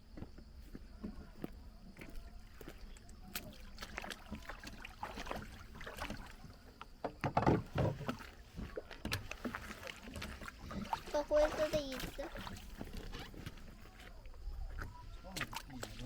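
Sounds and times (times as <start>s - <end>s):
water around boat hull: 0.0s - 16.0s
knocks on boat hull: 7.0s - 8.2s.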